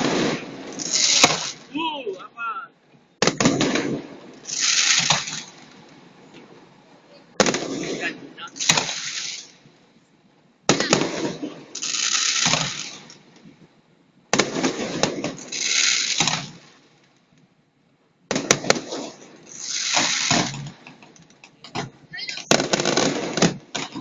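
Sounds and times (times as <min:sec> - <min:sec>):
fireworks bang: 0:00.0 - 0:01.8, 0:03.2 - 0:06.0, 0:07.4 - 0:09.6, 0:10.7 - 0:13.2, 0:14.3 - 0:16.8, 0:18.3 - 0:21.1, 0:21.8 - 0:24.0
fireworks crackling hiss: 0:00.0 - 0:02.3, 0:03.2 - 0:09.8, 0:10.7 - 0:13.6, 0:14.3 - 0:17.0, 0:18.3 - 0:24.0.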